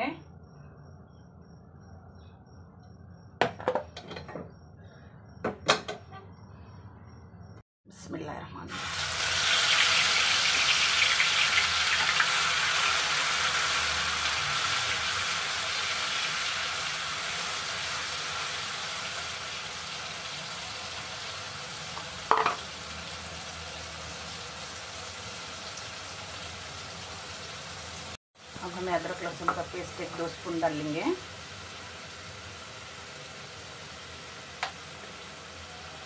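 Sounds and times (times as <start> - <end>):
knock: 3.4 - 4.5, 5.4 - 6.1, 22.3 - 22.6
paste sizzling in hot oil: 8.7 - 36.0.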